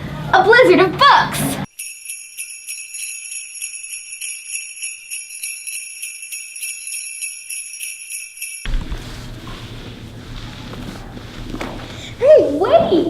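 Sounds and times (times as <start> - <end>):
sleigh bells jingling: 1.6 - 8.7.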